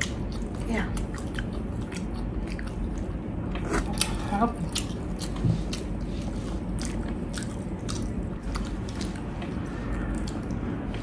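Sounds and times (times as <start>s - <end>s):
person chewing crunchy food: 0.0s - 10.9s
low hum: 0.0s - 11.0s.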